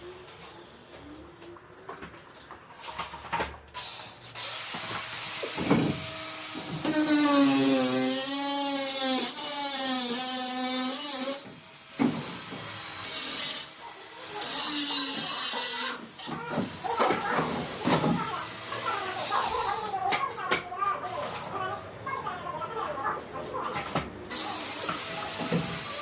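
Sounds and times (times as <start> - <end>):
power tool motor whine: 3.8 - 19.4, 24.3 - 26.0.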